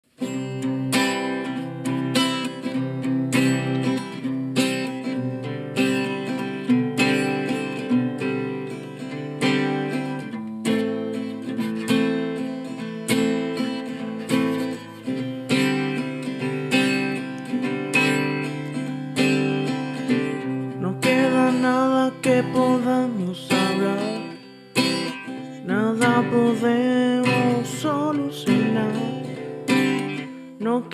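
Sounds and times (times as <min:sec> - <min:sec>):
acoustic guitar strumming chords: 0:00.1 - 0:30.9
wavering voice singing: 0:20.7 - 0:24.4, 0:25.6 - 0:29.4, 0:30.6 - 0:30.9.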